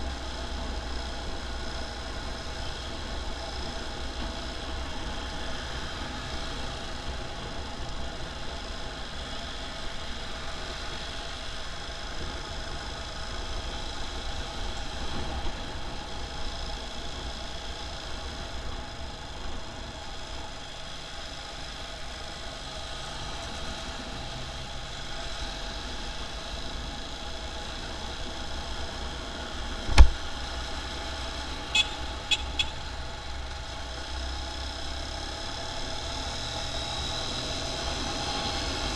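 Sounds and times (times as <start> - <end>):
motorcycle engine and road rumble: 0.0 - 38.9
sharp knock: 29.9 - 30.2.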